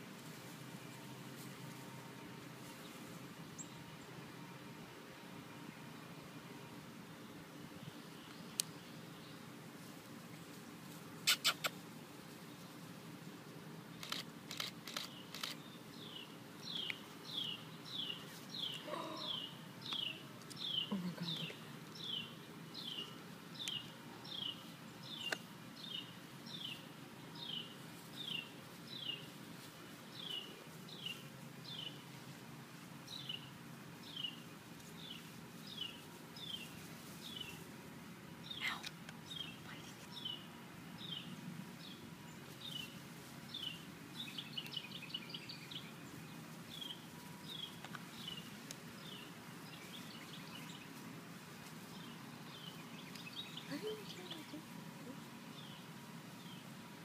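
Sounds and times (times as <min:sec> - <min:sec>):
bird chirping: 0:14.0 - 0:29.3, 0:38.4 - 0:51.0, 0:51.9 - 0:56.7.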